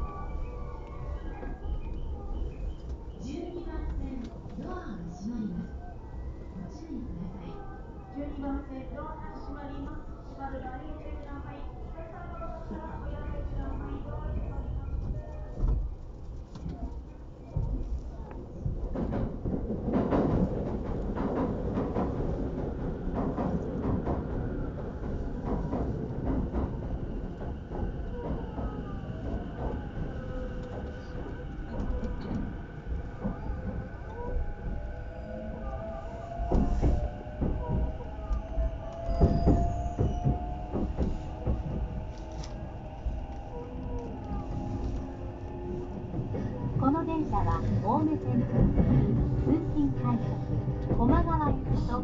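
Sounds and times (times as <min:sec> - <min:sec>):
commuter train rumbling: 0:00.0 - 0:52.0
wheels clacking over rail joints: 0:36.2 - 0:52.0.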